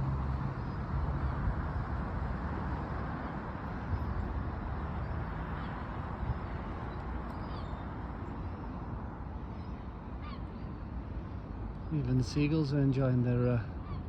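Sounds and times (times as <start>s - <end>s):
outdoor background noise: 0.0s - 14.0s
faint seagull calls: 7.4s - 7.9s, 9.5s - 10.9s, 13.7s - 14.0s.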